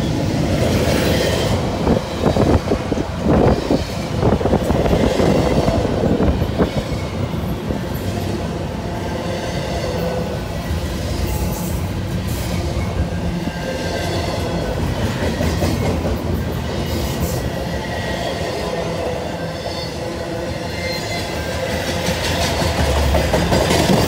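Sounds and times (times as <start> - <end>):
freight train rumbling and rattling: 0.0 - 24.0.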